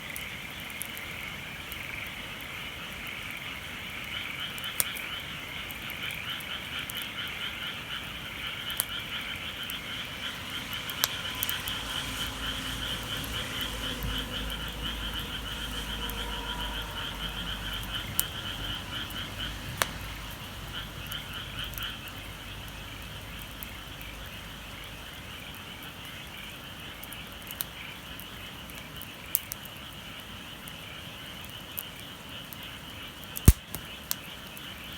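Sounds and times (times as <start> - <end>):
sharp clicks: 33.4 - 33.9.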